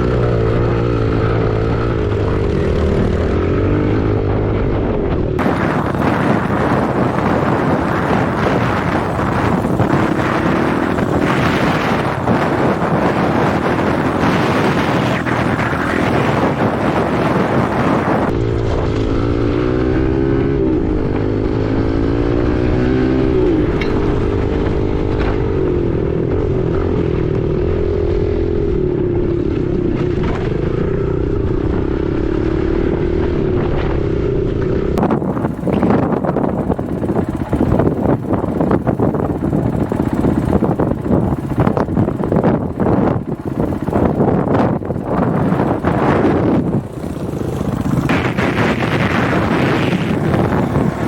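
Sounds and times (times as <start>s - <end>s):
dirt bike engine running: 0.0s - 51.0s
wind noise on microphone: 0.0s - 51.0s.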